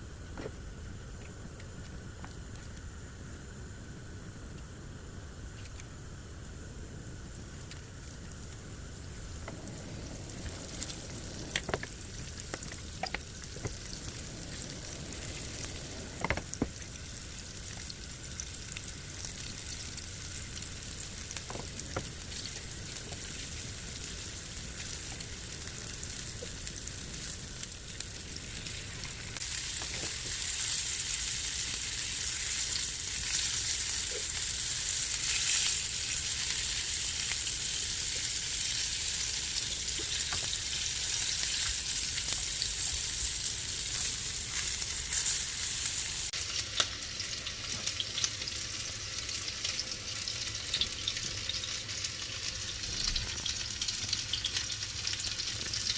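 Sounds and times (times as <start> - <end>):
food sizzling in a pan: 7.1 - 55.9.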